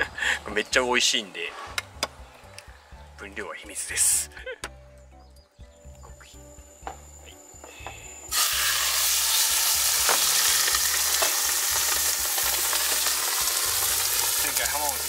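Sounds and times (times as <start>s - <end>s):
chicken sizzling in a frying pan: 8.3s - 15.0s.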